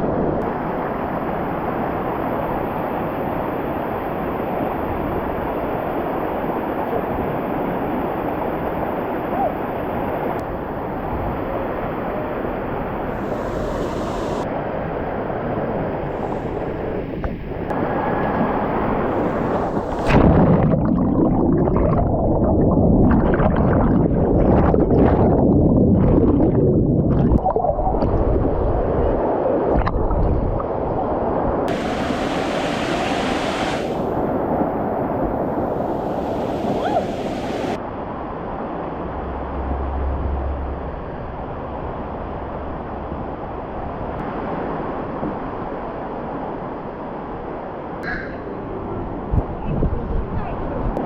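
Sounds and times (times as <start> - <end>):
waterfall rushing over rocks: 13.1 - 14.5, 31.7 - 34.4, 35.5 - 37.8.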